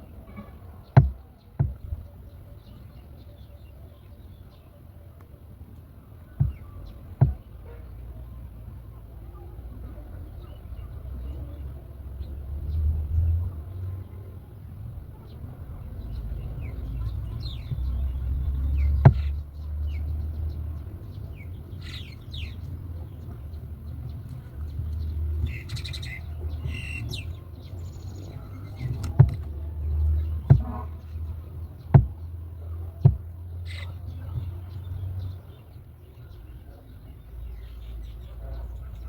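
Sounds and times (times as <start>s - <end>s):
birds chirping: 0.0s - 39.0s
sharp knocks: 1.0s - 2.0s, 6.4s - 7.4s, 18.9s - 19.4s, 28.8s - 29.5s, 30.4s - 30.9s, 31.9s - 32.2s, 33.0s - 33.3s.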